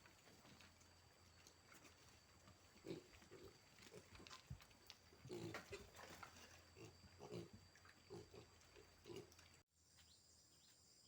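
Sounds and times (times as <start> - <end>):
pigs grunting: 2.8 - 4.4, 5.1 - 9.5.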